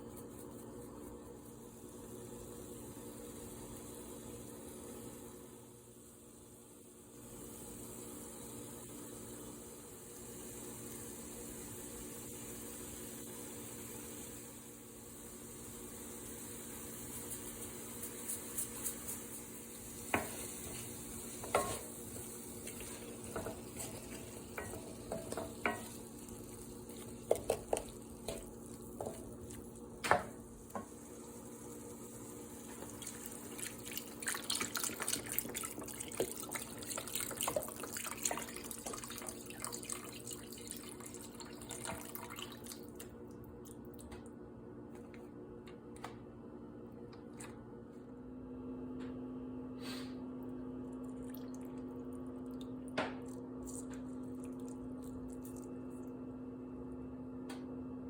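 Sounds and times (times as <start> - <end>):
dishes clinking in sink: 23.3 - 26.0.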